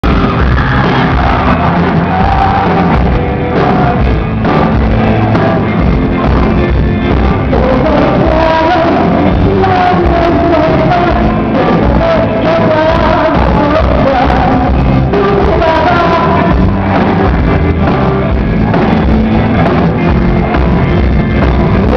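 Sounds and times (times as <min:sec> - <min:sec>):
live rock band playing: 0:00.0 - 0:21.9
woman singing: 0:07.4 - 0:18.4.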